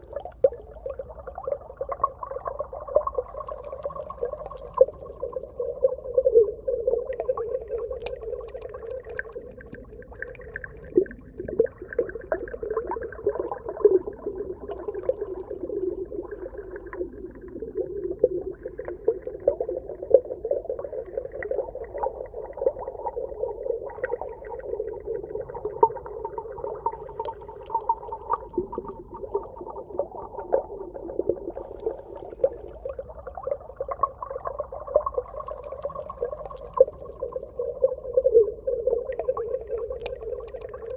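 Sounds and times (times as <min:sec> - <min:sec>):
small clicks and crackles: 0:07.9 - 0:11.7, 0:35.4 - 0:37.3, 0:39.8 - 0:40.9.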